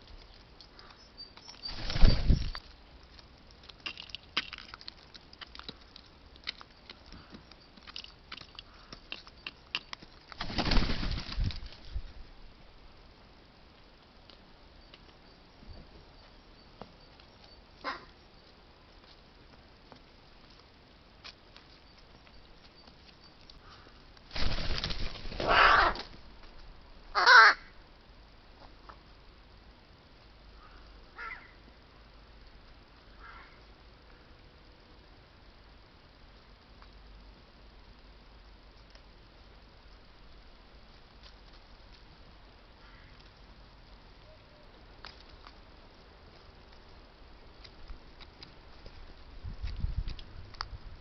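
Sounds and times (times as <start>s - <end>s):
beaks pecking at food: 0.0s - 11.8s
bird wingbeats: 1.6s - 2.6s, 10.4s - 12.1s, 23.7s - 26.2s
crow cawing: 17.8s - 18.1s, 25.4s - 26.0s, 27.1s - 27.7s, 30.6s - 31.6s, 33.2s - 33.6s, 42.8s - 43.2s.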